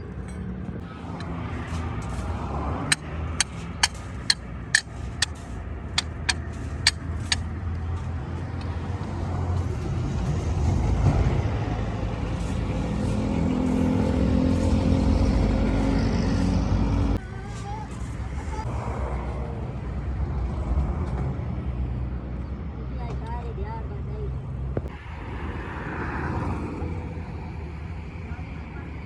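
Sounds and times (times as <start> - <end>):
heavy vehicle engine rumble: 0.0 - 25.9
sharp metal knocks: 2.8 - 7.5.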